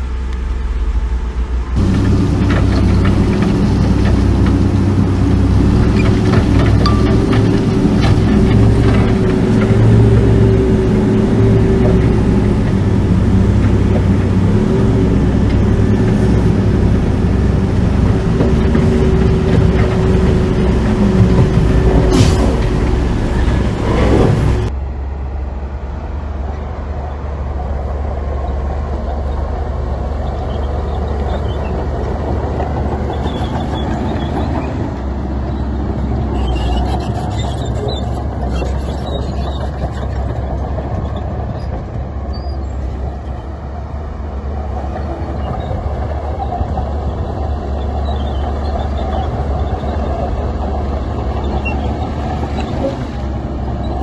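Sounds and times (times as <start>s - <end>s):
diesel machinery rumbling: 0.0s - 54.0s.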